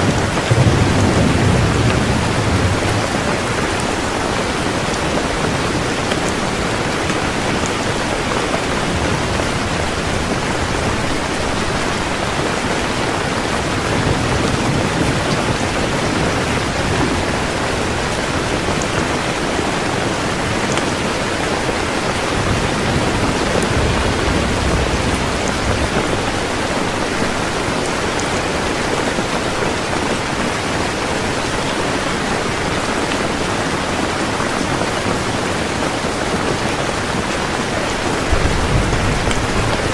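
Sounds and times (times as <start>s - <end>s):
distant thunder rumble: 0.0s - 19.4s, 21.5s - 29.4s, 37.6s - 39.9s
heavy rain falling: 0.0s - 39.9s.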